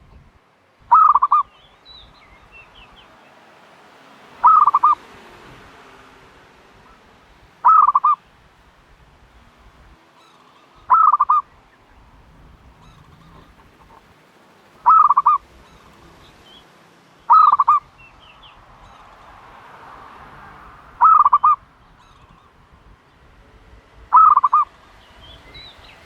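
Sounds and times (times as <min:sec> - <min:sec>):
turtle dove calling: 0:00.0 - 0:23.4, 0:24.0 - 0:26.0.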